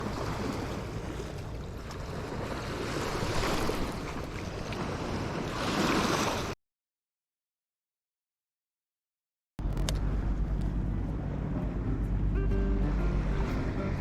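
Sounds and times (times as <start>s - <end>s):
waves washing against shore: 0.0s - 6.6s.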